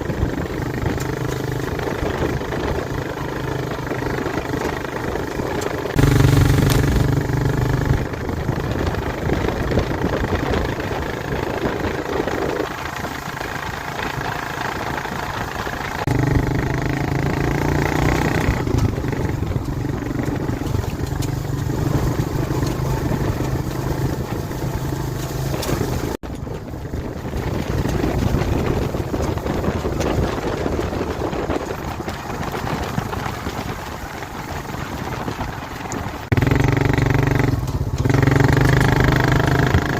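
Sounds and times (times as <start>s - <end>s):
atv engine revving: 0.0s - 26.5s, 36.1s - 39.9s.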